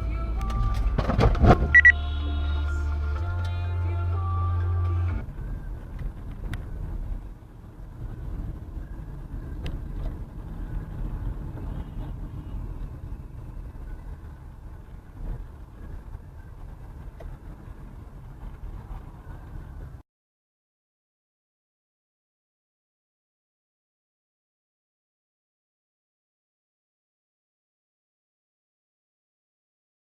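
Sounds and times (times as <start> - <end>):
vehicle driving rumble: 0.0 - 20.0.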